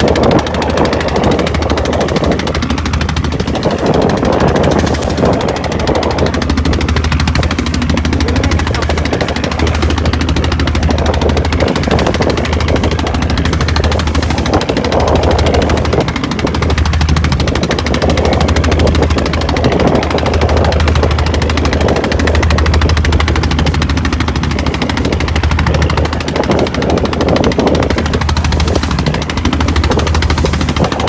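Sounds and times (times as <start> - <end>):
boat engine chugging: 0.0 - 31.0.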